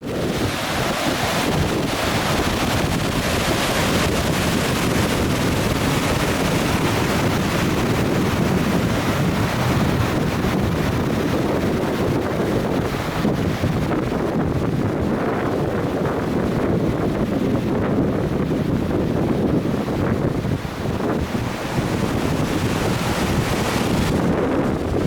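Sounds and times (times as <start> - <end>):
waterfall rushing: 0.1 - 10.4, 21.3 - 25.0.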